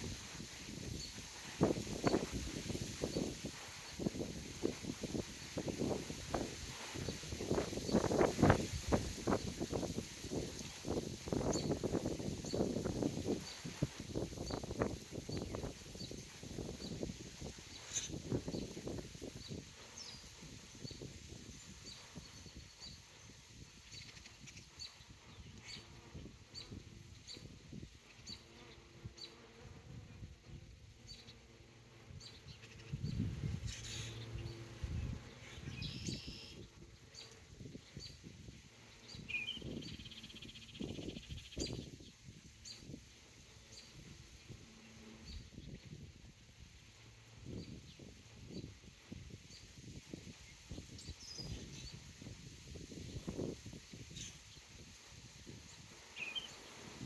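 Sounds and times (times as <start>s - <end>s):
songbirds chirping: 0.0s - 57.0s
buzzy bird trill: 32.1s - 38.2s.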